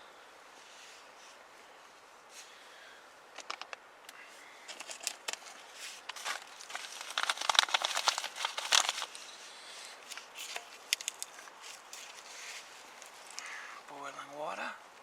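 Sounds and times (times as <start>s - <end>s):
plastic packet crinkling: 4.7s - 9.4s, 10.0s - 12.2s.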